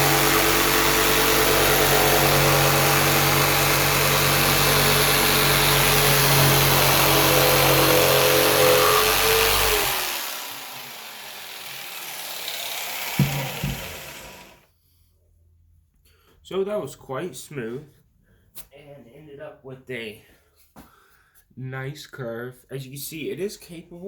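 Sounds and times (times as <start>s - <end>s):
jigsaw sawing wood: 0.0s - 14.6s
motor winding down: 0.0s - 14.6s
single knock: 13.2s - 13.8s.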